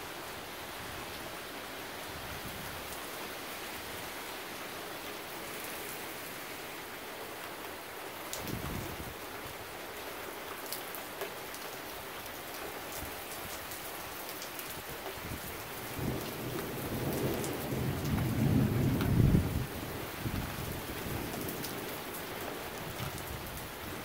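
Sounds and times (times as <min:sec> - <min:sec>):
heavy rain falling: 0:00.0 - 0:24.0
thunder rumbling: 0:15.9 - 0:21.6.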